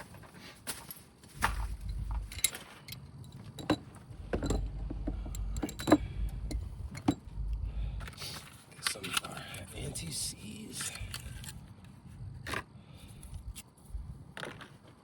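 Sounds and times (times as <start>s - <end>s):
low rumble: 1.4s - 8.6s, 13.1s - 14.3s
hand tools clicking and knocking: 1.4s - 9.2s.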